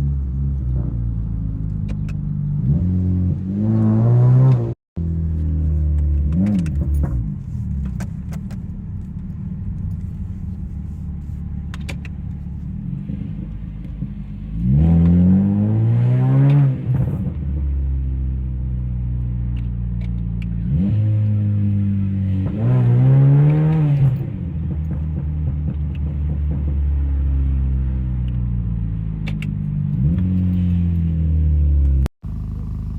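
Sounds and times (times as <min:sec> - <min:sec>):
car engine idling and revving: 0:00.0 - 0:32.9
exhaust pops and crackles: 0:05.2 - 0:15.2, 0:23.5 - 0:28.6.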